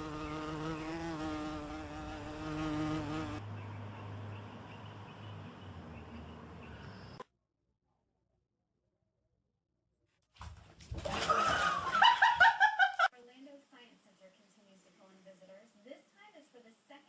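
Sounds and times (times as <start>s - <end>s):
buzzing insect: 0.0s - 3.4s.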